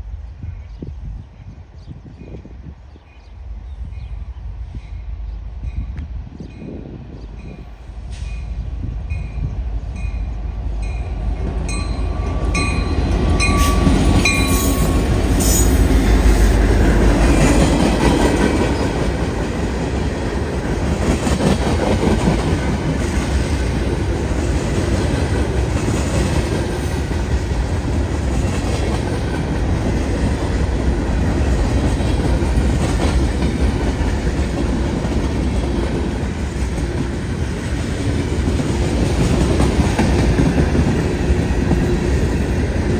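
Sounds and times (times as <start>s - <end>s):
crossing bell ringing: 10.0s - 15.7s
train wheels clickety-clack: 11.4s - 42.9s.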